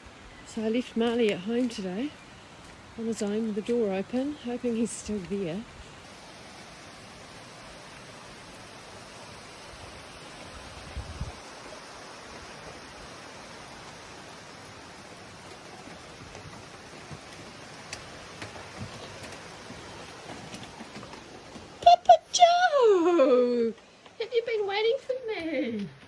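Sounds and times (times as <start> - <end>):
rain falling: 0.0 - 26.0.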